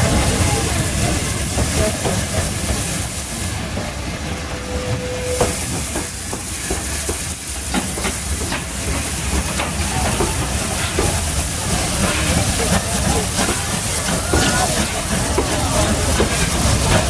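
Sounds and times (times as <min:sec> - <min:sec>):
hiss of steam: 0:00.0 - 0:17.0
brief squeal: 0:04.6 - 0:05.6.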